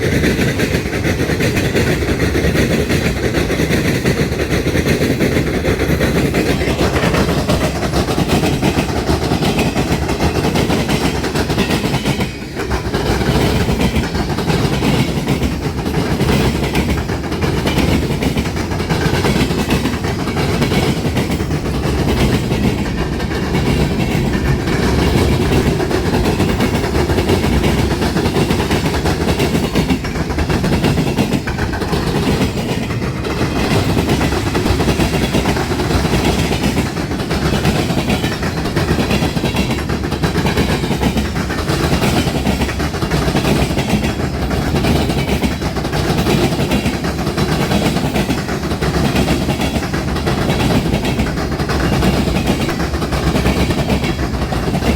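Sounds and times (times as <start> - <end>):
train wheels clacking on rails: 0.0 - 54.9.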